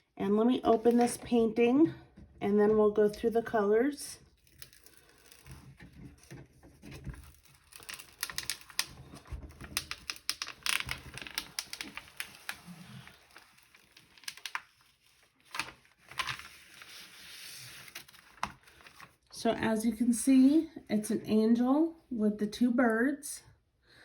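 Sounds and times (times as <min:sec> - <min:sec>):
wrapping crinkling and rustling: 0:04.3 - 0:19.4.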